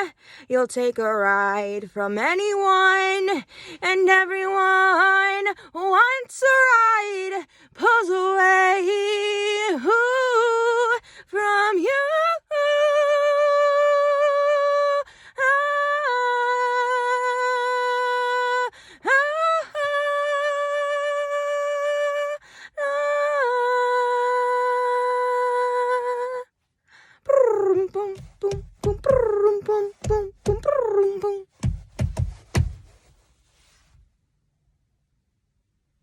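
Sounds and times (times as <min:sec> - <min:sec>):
woman singing long notes: 0:27.3 - 0:31.8.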